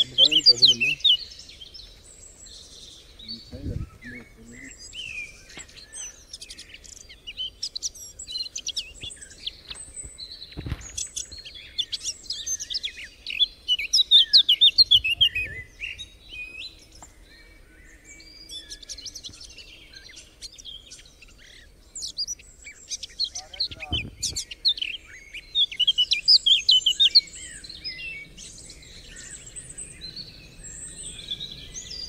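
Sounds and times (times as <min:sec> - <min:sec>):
songbirds singing and chirping: 0:00.0 - 0:32.0
brief low thump: 0:10.5 - 0:11.0, 0:23.8 - 0:24.5.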